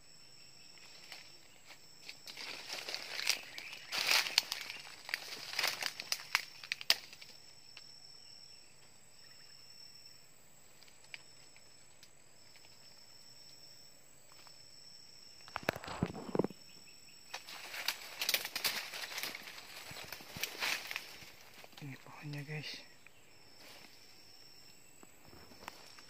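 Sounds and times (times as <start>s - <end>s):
high insect trill: 0.0s - 26.0s
footsteps crunching through undergrowth: 0.8s - 7.4s, 17.3s - 22.6s, 23.5s - 24.4s, 25.1s - 26.0s.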